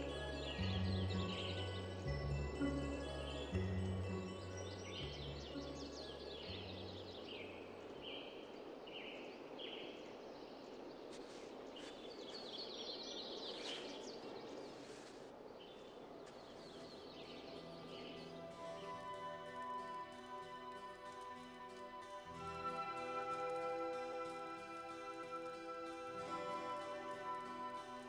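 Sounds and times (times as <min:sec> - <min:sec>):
low held music notes: 0:00.0 - 0:08.8, 0:16.0 - 0:28.0
faint bird chirps: 0:00.0 - 0:21.5.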